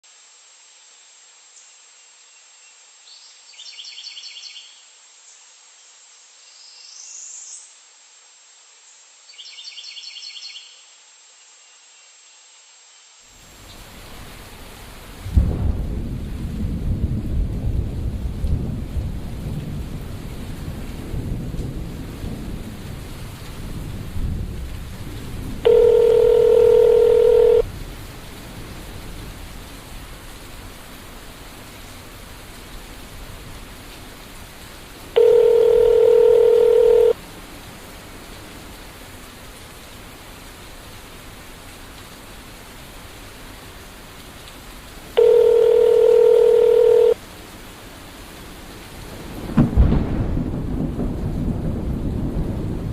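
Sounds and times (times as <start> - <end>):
rain hiss: 0.0 - 52.9
thunder rumbling: 15.2 - 29.5, 49.2 - 52.9
telephone tone: 25.7 - 27.7, 35.2 - 37.2, 45.2 - 47.2.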